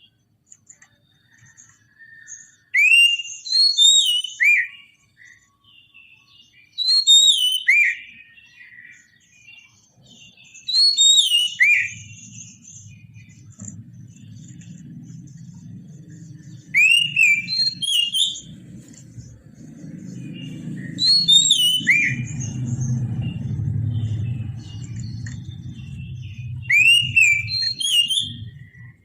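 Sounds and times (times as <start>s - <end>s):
soft bird twittering: 0.0s - 29.0s
bird whistling song phrases: 1.2s - 14.8s, 16.1s - 29.0s.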